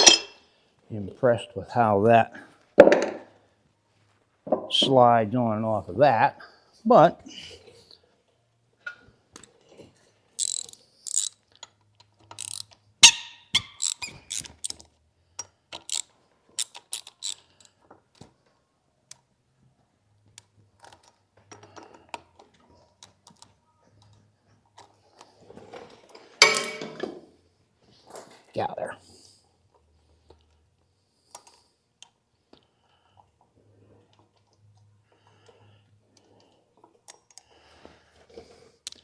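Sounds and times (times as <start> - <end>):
metallic clicks and clanks of tools: 10.4 - 17.8.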